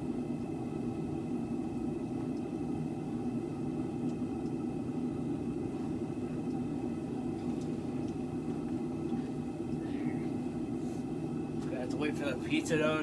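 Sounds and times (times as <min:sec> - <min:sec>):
faint whine: 0:00.0 - 0:13.0
faint ticks: 0:04.0 - 0:04.6, 0:07.4 - 0:09.9.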